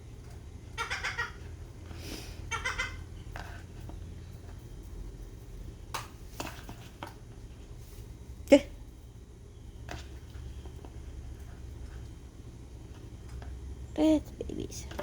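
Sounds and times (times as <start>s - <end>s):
seagull calling: 0.7s - 1.5s, 2.5s - 3.1s.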